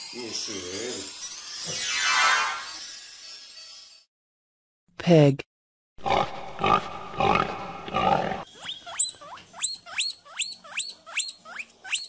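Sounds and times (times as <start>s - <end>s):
pig grunting: 6.0s - 8.5s
pig squealing: 6.0s - 12.0s.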